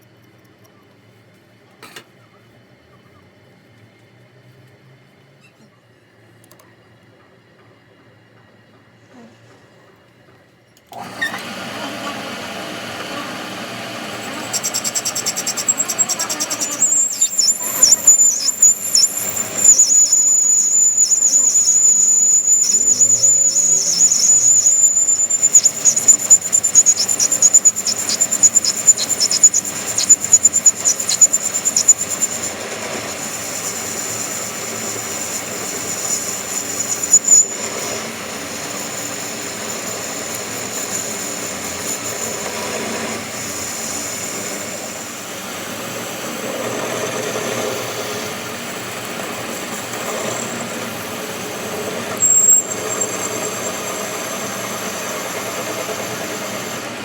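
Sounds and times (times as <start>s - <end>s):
metalworking machine whining: 10.9s - 57.0s
loud sharp scraping: 13.0s - 45.0s.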